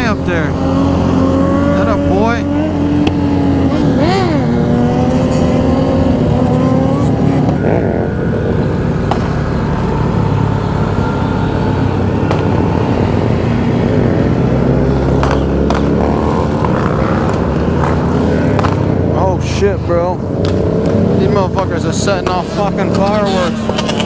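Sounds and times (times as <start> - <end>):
motorcycle engines droning: 0.0 - 24.0
sharp engine pops: 12.2 - 12.6, 15.2 - 16.0, 17.2 - 19.0.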